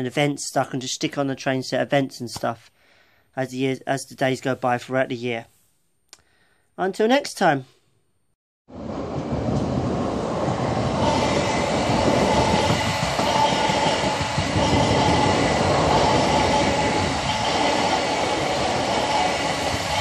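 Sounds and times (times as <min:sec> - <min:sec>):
train wheels rumbling on rails: 0:08.7 - 0:20.0.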